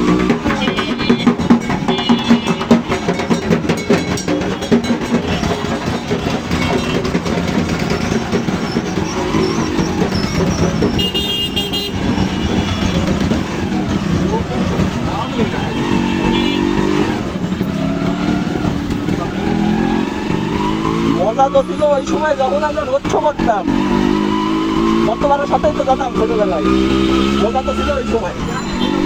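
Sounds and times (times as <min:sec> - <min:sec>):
vehicle horn: 0:00.0 - 0:03.4, 0:04.6 - 0:07.2, 0:10.7 - 0:13.3, 0:15.2 - 0:17.0, 0:26.7 - 0:27.6
music: 0:00.0 - 0:08.4
fast drum beats: 0:00.0 - 0:29.0
road traffic: 0:00.0 - 0:29.0.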